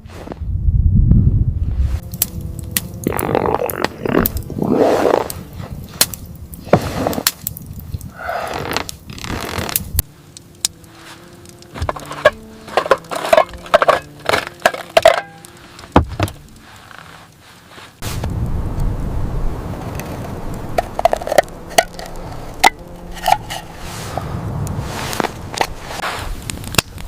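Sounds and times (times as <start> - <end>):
faint steady notes: 2.0 - 6.8, 10.0 - 17.8, 18.4 - 25.5
knocks and clinks of handling: 11.8 - 16.3.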